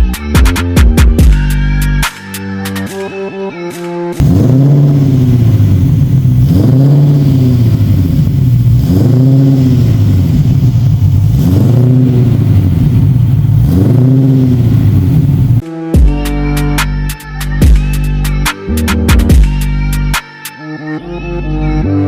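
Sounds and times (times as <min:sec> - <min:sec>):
car engine revving: 0:04.2 - 0:15.6.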